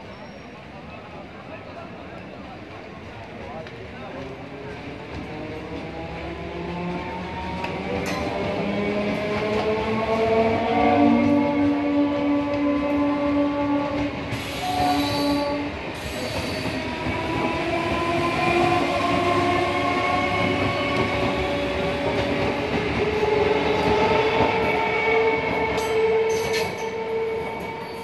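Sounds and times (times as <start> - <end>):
train wheels rumbling on rails: 2.0 - 28.0
rail clicks: 3.1 - 27.9
horn-like steady tone: 10.7 - 16.3.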